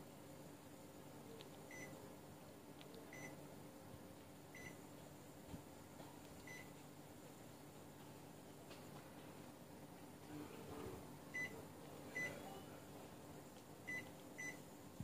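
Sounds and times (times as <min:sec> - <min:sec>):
faint steady hum: 0:00.0 - 0:15.0
faint electronic beeps: 0:01.7 - 0:02.0, 0:03.1 - 0:03.4.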